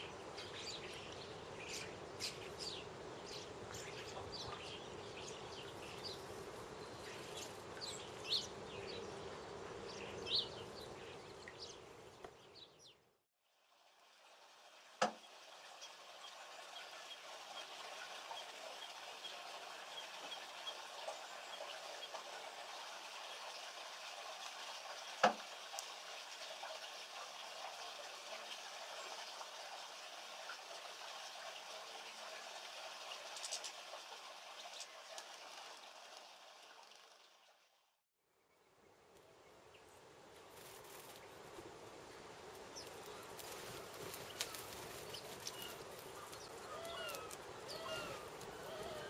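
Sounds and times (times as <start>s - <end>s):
faint outdoor hiss: 0.0s - 49.0s.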